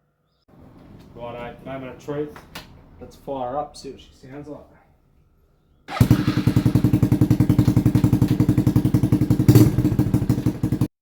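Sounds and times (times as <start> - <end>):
motorbike engine idling: 5.9 - 10.9.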